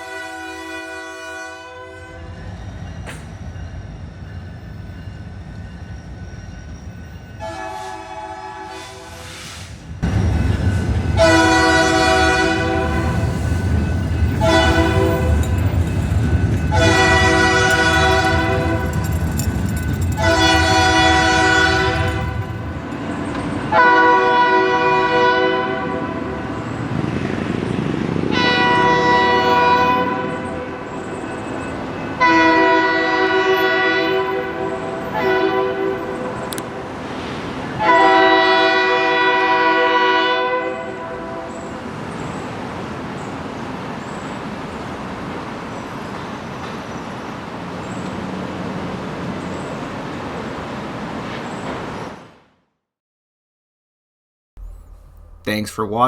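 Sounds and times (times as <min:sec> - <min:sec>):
locomotive horn blasts: 0:00.0 - 0:02.4, 0:07.4 - 0:09.4, 0:11.2 - 0:13.5, 0:14.4 - 0:15.6, 0:16.7 - 0:19.0, 0:20.2 - 0:22.5, 0:23.7 - 0:26.4, 0:28.3 - 0:30.4, 0:32.2 - 0:36.4, 0:37.8 - 0:41.5
locomotive engines rumbling: 0:09.8 - 0:24.3, 0:54.6 - 0:56.0.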